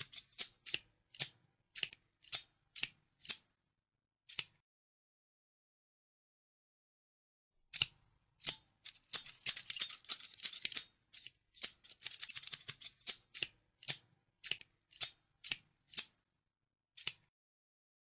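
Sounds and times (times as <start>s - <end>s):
scissors snipping: 0.0s - 3.5s, 4.3s - 4.6s, 7.7s - 16.2s, 17.0s - 17.3s.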